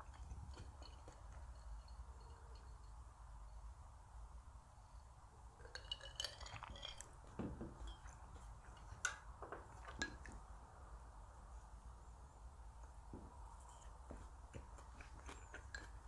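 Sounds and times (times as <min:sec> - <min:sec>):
utensils clinking on dishes: 0:00.0 - 0:03.0, 0:05.6 - 0:10.4.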